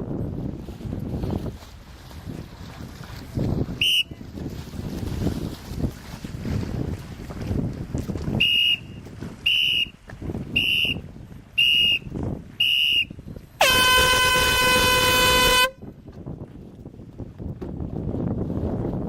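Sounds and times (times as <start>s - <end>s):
wind buffeting microphone: 0.0s - 19.0s
air horn blast rising in pitch: 13.6s - 15.8s.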